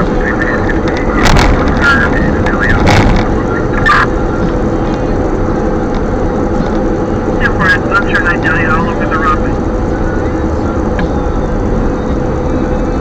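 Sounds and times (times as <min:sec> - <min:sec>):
voice from a radio: 0:00.0 - 0:04.1, 0:07.4 - 0:09.6
wind buffeting microphone: 0:00.0 - 0:07.3.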